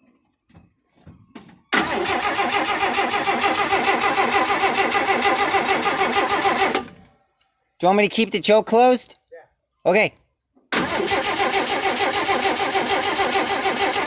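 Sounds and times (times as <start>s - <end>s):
starter cranking engine: 1.8s - 7.1s, 10.8s - 14.0s.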